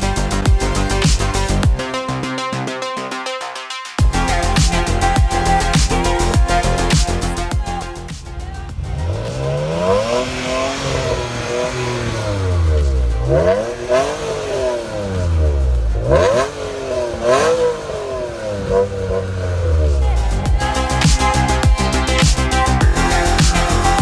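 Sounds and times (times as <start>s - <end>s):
car engine revving: 0.0s - 2.4s, 4.0s - 24.0s.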